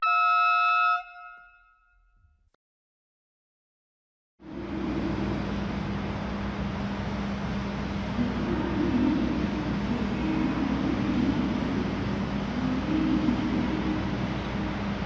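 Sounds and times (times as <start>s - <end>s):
diesel train engines running: 4.4s - 15.0s.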